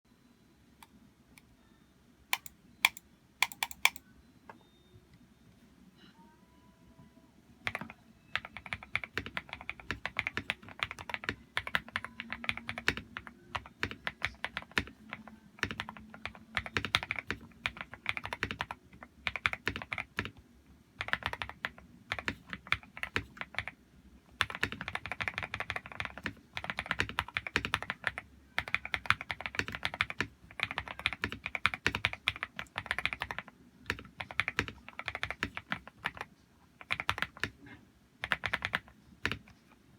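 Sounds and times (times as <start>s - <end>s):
mechanical keyboard typing: 2.3s - 4.0s, 7.6s - 20.4s, 21.0s - 23.8s, 24.4s - 37.6s, 38.2s - 39.6s.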